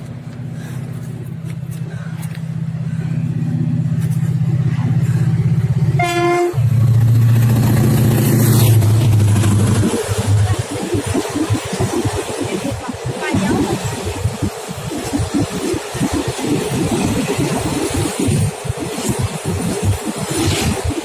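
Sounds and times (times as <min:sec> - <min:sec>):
diesel locomotive engine drone: 0:00.0 - 0:21.0
train horn blast: 0:06.0 - 0:06.8.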